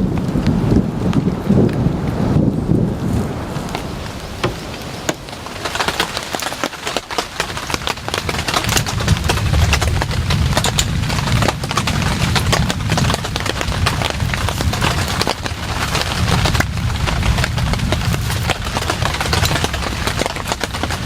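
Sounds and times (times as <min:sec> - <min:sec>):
low rain rumble: 0:00.0 - 0:21.0
rain drops ticking on tent: 0:00.0 - 0:21.0.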